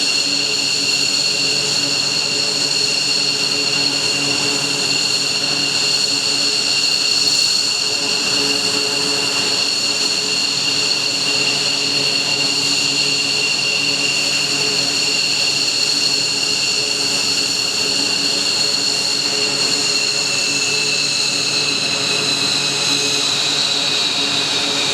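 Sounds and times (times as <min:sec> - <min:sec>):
jet engines high-pitched whine: 0:00.0 - 0:24.9
jet exhaust rushing: 0:07.8 - 0:24.9.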